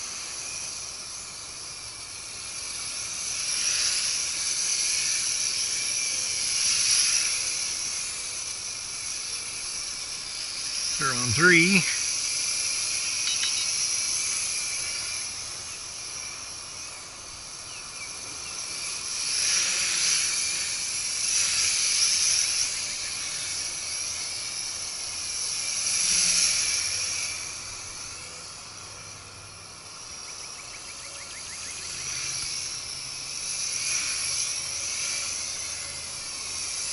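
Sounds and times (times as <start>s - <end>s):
quadcopter buzzing whine: 18.3s - 24.2s.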